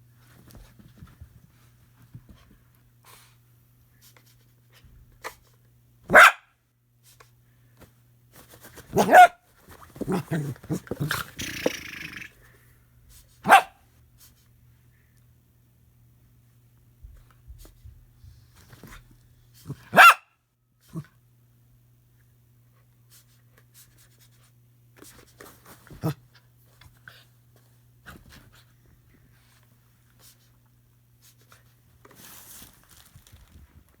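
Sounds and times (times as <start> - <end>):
dog barking: 6.1 - 6.5, 8.9 - 9.4, 13.4 - 13.8, 19.8 - 20.3.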